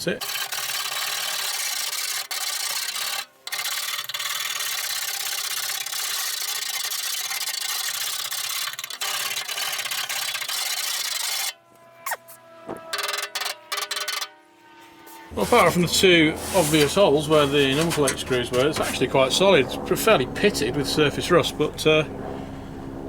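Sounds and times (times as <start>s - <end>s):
hand scraper rasping on steel: 0.0s - 11.5s, 15.1s - 19.1s.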